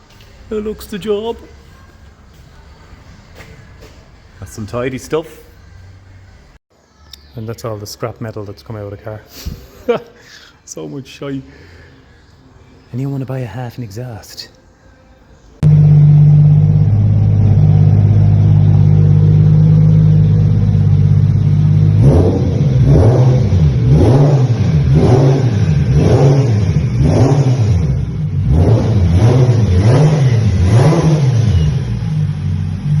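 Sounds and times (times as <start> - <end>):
car engine idling and revving: 15.6 - 33.0.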